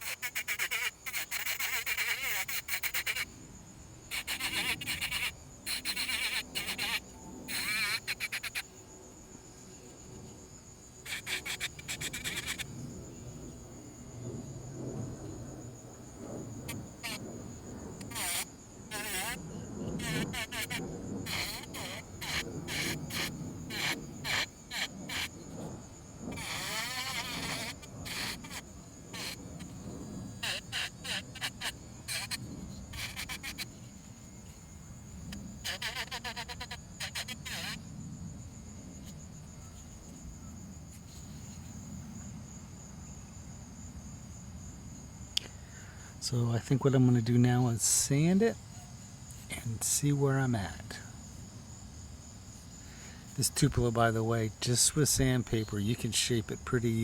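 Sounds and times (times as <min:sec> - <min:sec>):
rotary tool grinding wood: 0:18.0 - 0:19.4, 0:20.0 - 0:25.3, 0:26.3 - 0:29.4.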